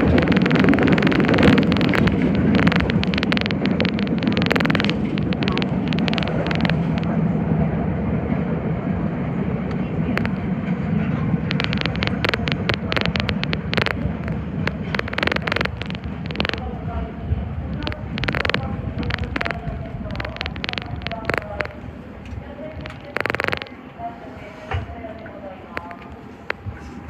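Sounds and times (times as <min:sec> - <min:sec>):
rapid sharp clicking: 0:00.0 - 0:07.1, 0:10.2 - 0:10.4, 0:11.5 - 0:16.7, 0:17.7 - 0:21.8, 0:22.8 - 0:23.7
subway train rumbling: 0:04.7 - 0:11.5, 0:16.0 - 0:20.2.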